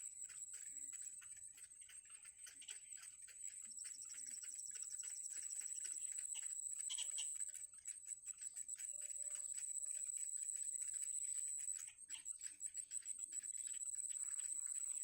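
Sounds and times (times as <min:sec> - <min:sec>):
small ticks: 0:00.0 - 0:15.0.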